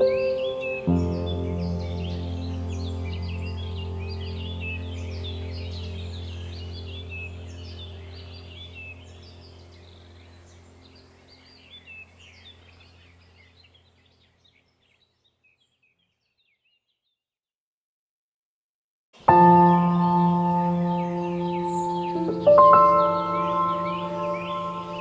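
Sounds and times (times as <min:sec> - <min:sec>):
birds chirping: 0:00.0 - 0:17.2, 0:19.2 - 0:25.0
low steady hum: 0:01.4 - 0:14.2.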